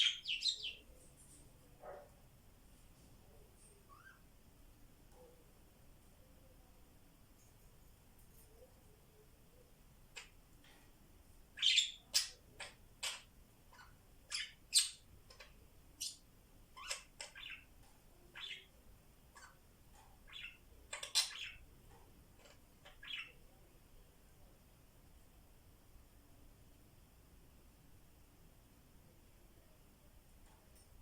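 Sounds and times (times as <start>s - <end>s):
parrots chirping and squawking: 0.0s - 0.8s, 11.6s - 17.7s, 18.3s - 18.7s, 19.3s - 19.6s, 20.2s - 21.7s, 22.4s - 23.4s.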